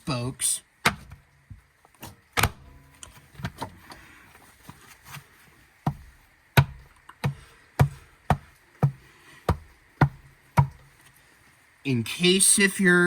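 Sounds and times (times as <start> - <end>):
hand smacking hubcap: 4.6 - 11.0.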